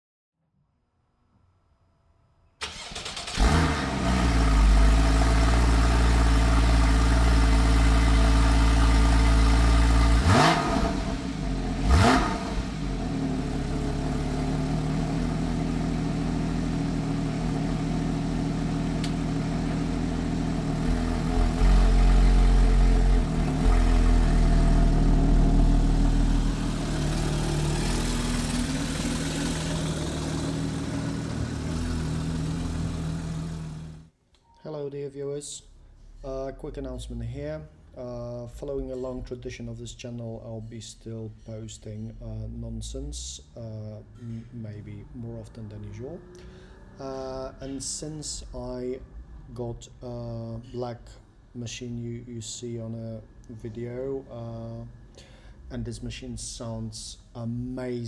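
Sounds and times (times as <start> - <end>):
car engine cold start and idle: 2.6 - 34.1
engine throttle blips: 2.6 - 34.1.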